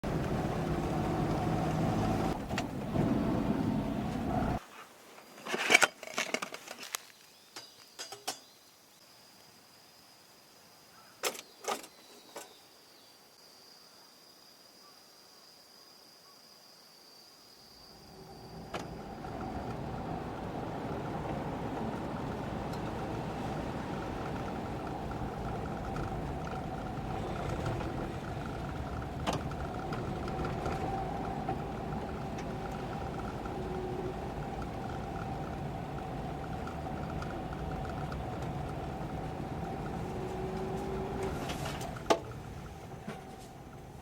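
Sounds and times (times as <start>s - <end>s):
car engine humming: 0.0s - 4.6s, 18.2s - 44.0s.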